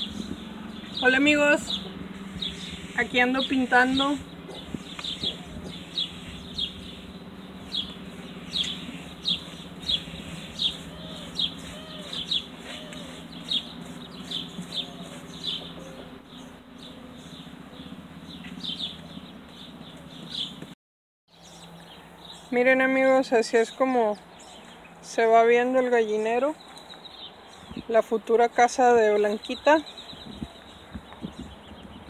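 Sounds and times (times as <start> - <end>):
bird chirping: 0.0 - 20.7, 21.3 - 28.4, 29.0 - 32.0
steady low hum: 0.0 - 20.7.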